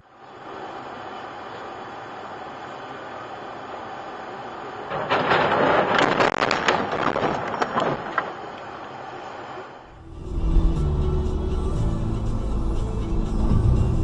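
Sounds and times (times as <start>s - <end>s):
vehicle collision crunches: 4.8s - 8.6s
music: 9.9s - 14.0s.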